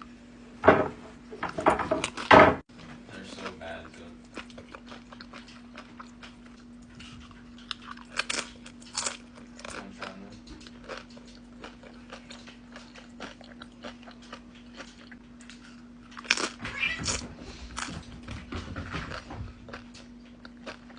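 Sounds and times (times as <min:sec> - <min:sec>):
person biting and chewing food: 0:04.3 - 0:17.9.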